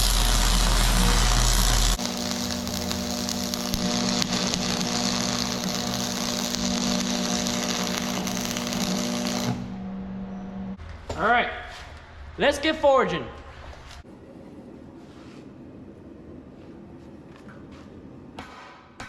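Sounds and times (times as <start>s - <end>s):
welding arc hissing and crackling: 0.0s - 9.8s
welder transformer hum: 0.0s - 10.8s.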